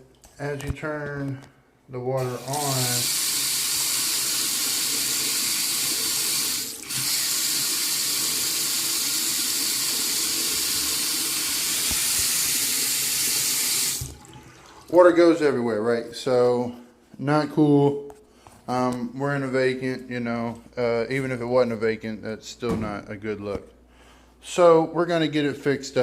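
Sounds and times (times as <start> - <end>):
faucet water running into sink: 2.2 - 15.0.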